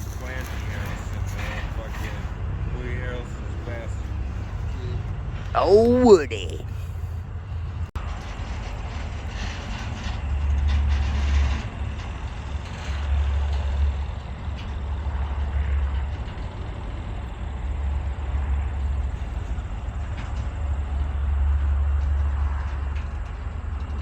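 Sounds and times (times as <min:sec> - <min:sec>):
vehicle rumble with surges: 0:00.0 - 0:05.7.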